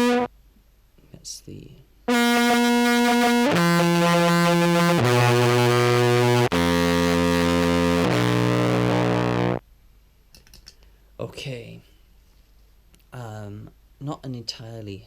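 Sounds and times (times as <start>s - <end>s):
buzzy distorted clarinet notes: 0.0s - 0.3s, 2.1s - 9.6s.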